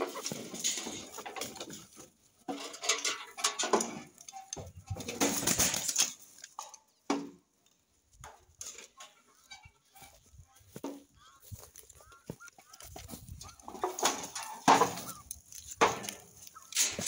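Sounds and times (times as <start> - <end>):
rustling and shuffling: 0.0 - 17.0
birds giving low calls: 9.0 - 17.0.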